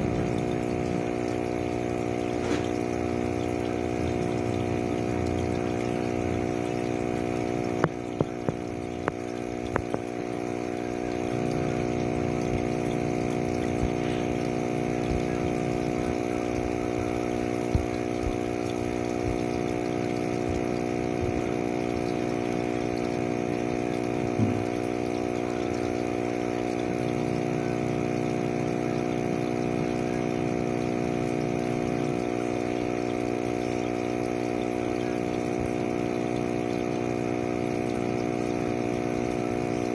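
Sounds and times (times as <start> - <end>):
small motor humming: 0.0 - 39.9.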